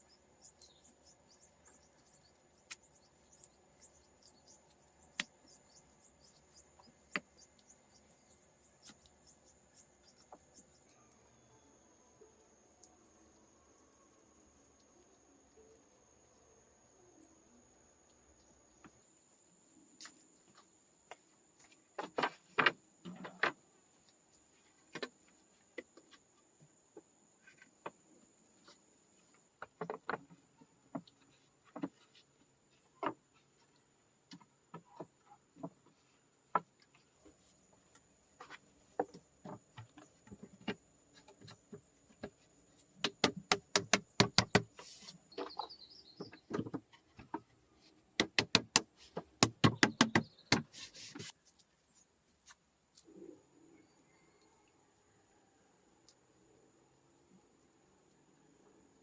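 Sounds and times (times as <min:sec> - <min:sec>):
faint high-pitched tone: 0:10.9 - 0:14.5
knocks and taps: 0:43.0 - 0:44.7, 0:48.2 - 0:50.7.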